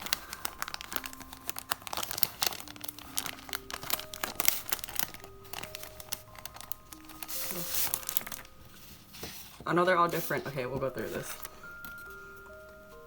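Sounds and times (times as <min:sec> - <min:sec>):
paper and plastic packaging crinkling: 0:00.0 - 0:13.0.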